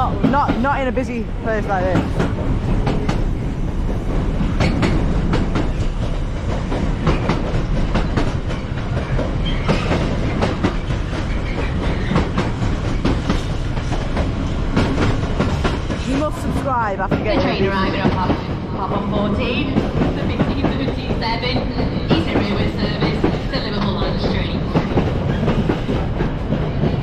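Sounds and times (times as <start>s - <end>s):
freight train passing: 0.0s - 27.0s.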